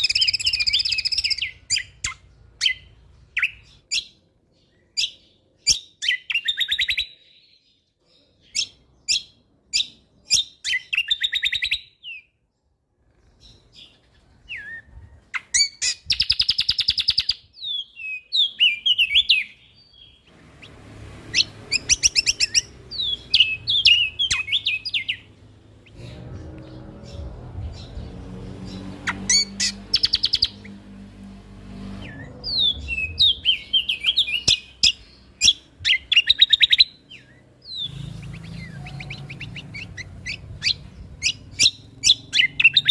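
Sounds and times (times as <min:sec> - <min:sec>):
songbird trills and whistles: 0:00.0 - 0:04.2, 0:21.4 - 0:26.0
low rumbling background noise: 0:20.1 - 0:36.2.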